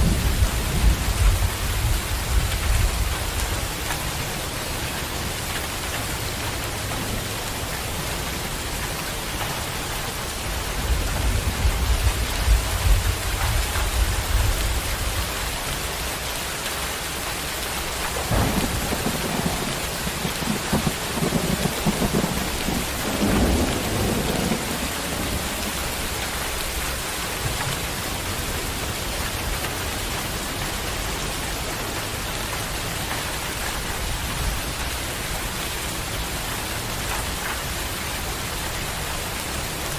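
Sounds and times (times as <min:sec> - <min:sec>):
thunder rolling: 0:00.0 - 0:03.4, 0:18.1 - 0:28.2
heavy rain falling: 0:00.0 - 0:39.9.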